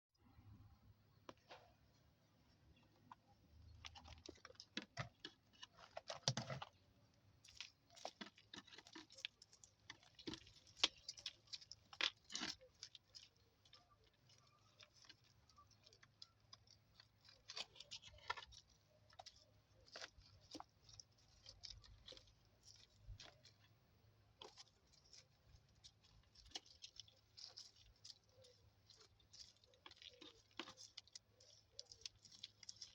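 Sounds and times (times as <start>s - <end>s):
faint crunching and clicking: 0.2s - 32.9s.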